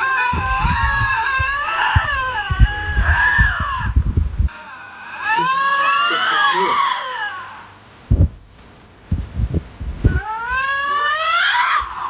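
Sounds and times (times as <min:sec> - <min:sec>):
low thumps: 0:00.0 - 0:04.5, 0:08.1 - 0:10.6
lynxes yowling: 0:00.0 - 0:07.8, 0:10.0 - 0:12.0.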